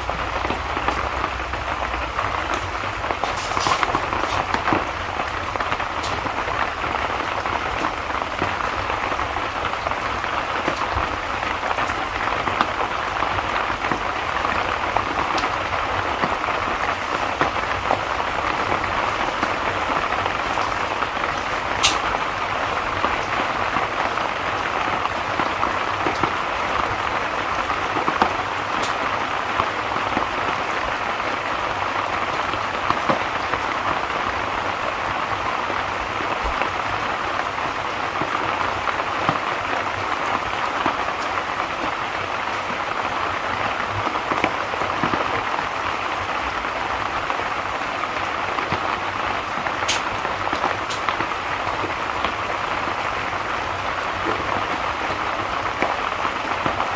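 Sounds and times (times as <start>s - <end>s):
steady rain: 0.0s - 56.9s.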